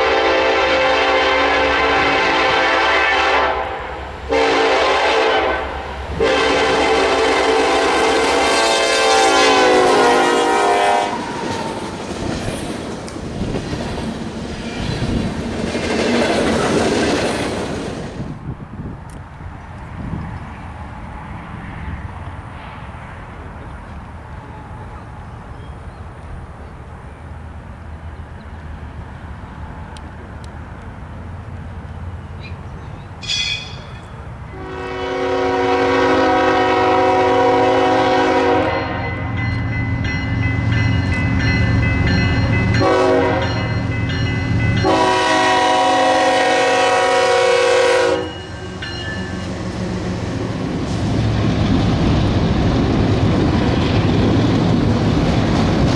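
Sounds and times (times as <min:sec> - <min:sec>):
train air horn blasts: 0:00.0 - 0:12.0, 0:33.2 - 0:39.4, 0:42.7 - 0:43.9, 0:44.6 - 0:50.1
diesel locomotive rumble: 0:00.0 - 0:55.9.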